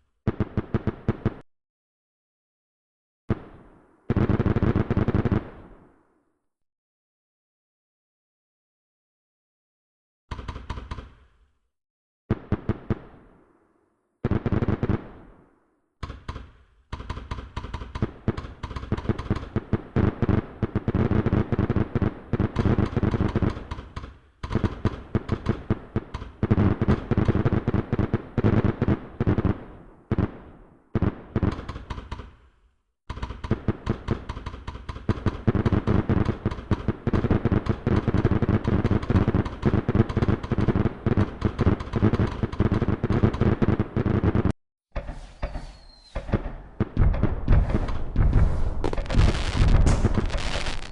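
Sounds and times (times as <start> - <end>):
fireworks bangs and crackles: 0.3 - 1.4, 3.3 - 6.0, 12.3 - 13.5, 14.2 - 16.4, 17.0 - 32.4, 33.1 - 50.9.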